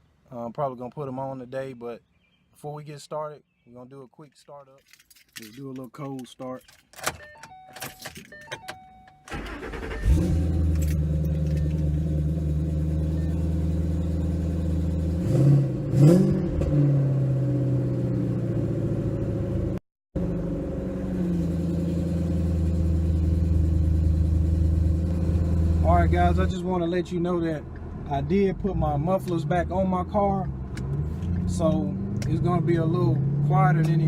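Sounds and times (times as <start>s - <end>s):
car engine idling and revving: 9.3s - 34.0s.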